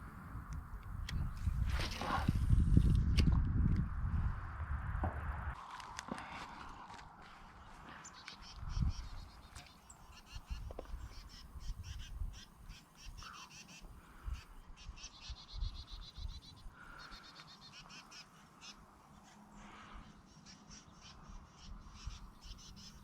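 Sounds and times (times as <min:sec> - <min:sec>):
low wind rumble: 0:00.0 - 0:13.3
birds chattering: 0:07.5 - 0:23.0.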